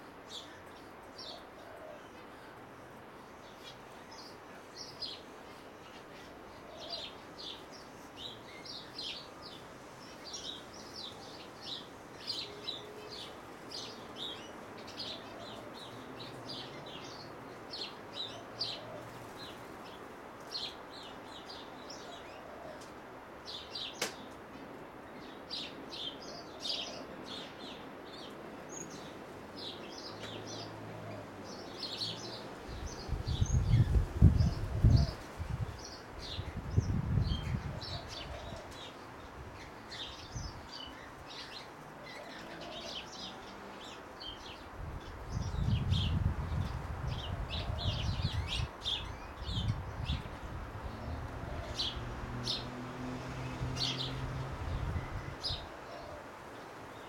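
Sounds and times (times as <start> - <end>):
birds chirping: 25.1 - 56.2.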